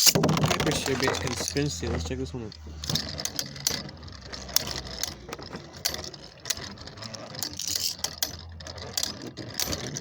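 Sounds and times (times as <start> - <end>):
spinning tops clattering on plastic: 0.0 - 10.0.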